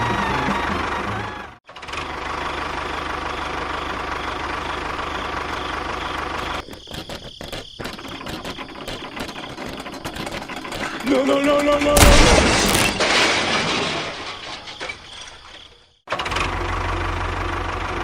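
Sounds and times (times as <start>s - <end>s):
engine running: 0.0s - 6.6s.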